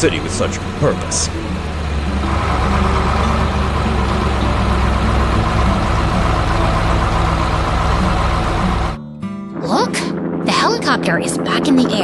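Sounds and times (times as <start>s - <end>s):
truck engine running: 0.0s - 9.0s.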